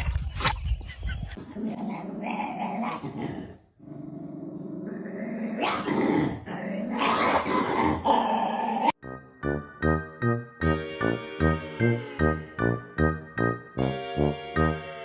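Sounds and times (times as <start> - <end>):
dog growling: 1.6 - 9.0.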